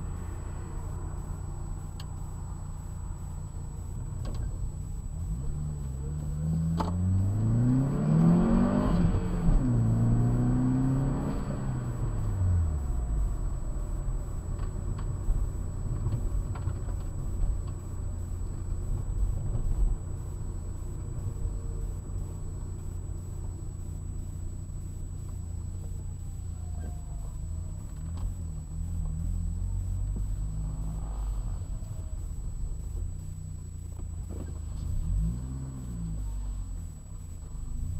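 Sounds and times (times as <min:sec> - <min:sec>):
car engine rumble: 0:00.0 - 0:37.9
road noise: 0:00.0 - 0:37.9.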